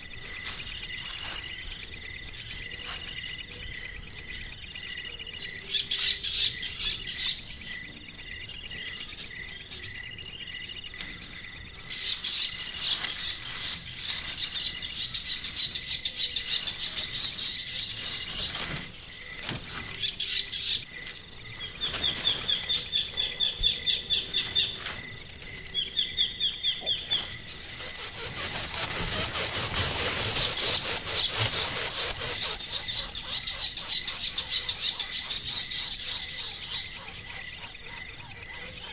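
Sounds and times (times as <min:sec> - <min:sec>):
crickets chirping: 0:00.0 - 0:38.9
bird chirps: 0:11.6 - 0:38.9.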